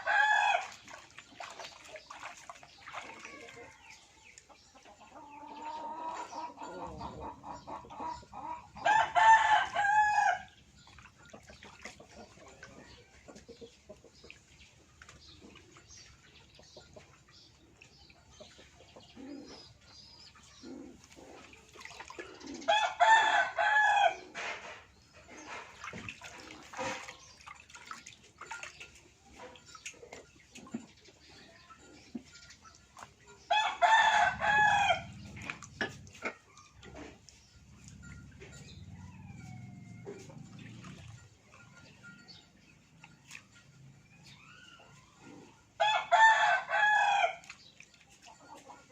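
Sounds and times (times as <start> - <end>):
chicken clucking: 3.2 - 9.9, 11.3 - 14.4, 29.2 - 40.9, 48.1 - 48.9
rooster crowing: 8.8 - 10.5, 33.5 - 35.1, 38.9 - 40.3, 45.8 - 47.4.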